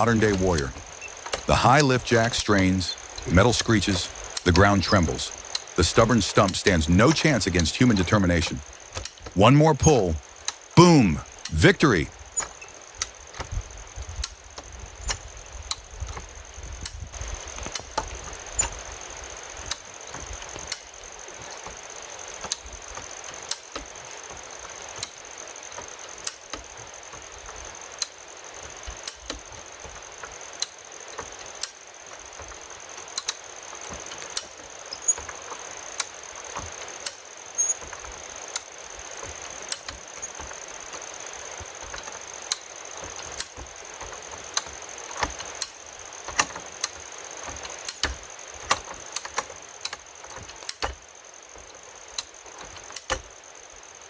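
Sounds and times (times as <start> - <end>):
mechanical clicks and knocks: 41.8 - 51.0.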